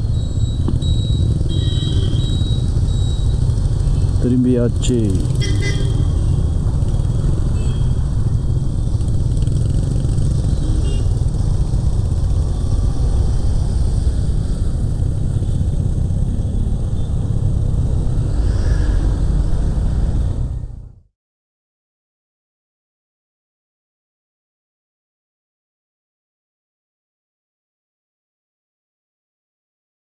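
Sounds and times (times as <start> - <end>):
motorcycle engine: 0.0 - 20.8.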